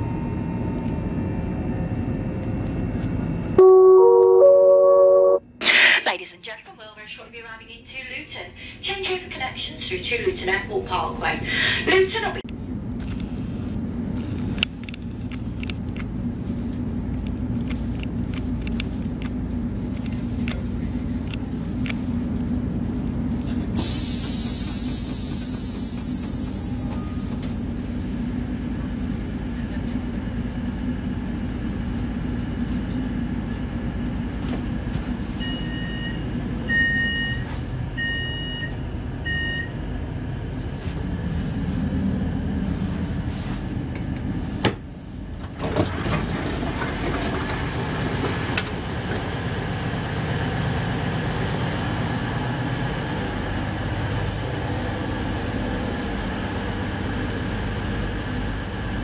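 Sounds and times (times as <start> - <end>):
two-tone electronic door beeps: 3.6 - 5.4, 35.4 - 39.8
train running rumble: 8.0 - 36.8, 38.7 - 59.0.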